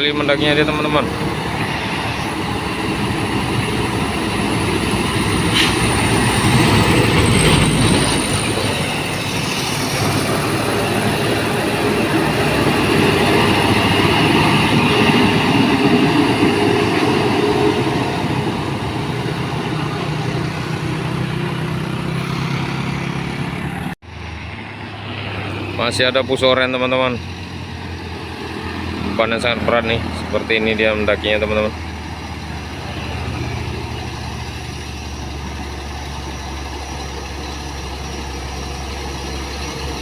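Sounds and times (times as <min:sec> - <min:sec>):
truck diesel engine labouring: 0:00.0 - 0:40.0.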